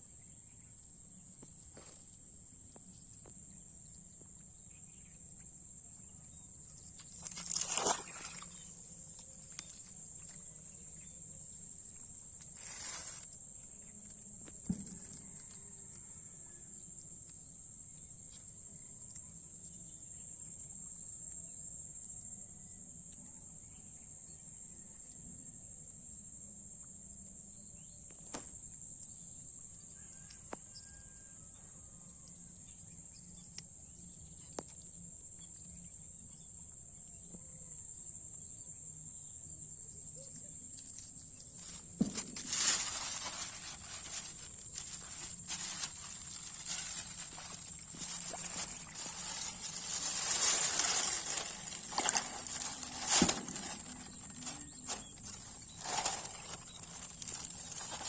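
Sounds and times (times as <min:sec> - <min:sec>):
crickets shrilling: 0:06.3 - 0:15.9, 0:40.2 - 0:58.0
rustling and clicking noise: 0:40.8 - 0:58.0.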